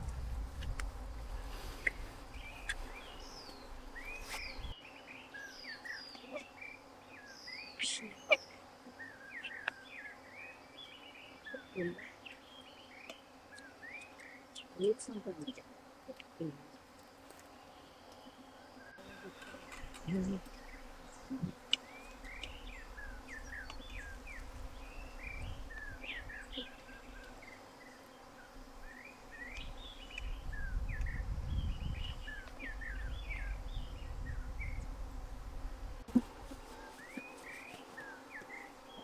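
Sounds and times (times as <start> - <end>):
low rumble: 0.0 - 1.6.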